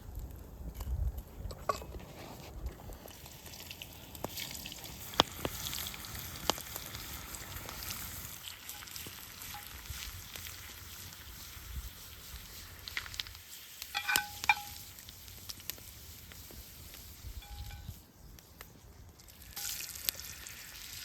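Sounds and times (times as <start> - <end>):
food sizzling in a pan: 3.4 - 18.0, 19.3 - 21.0.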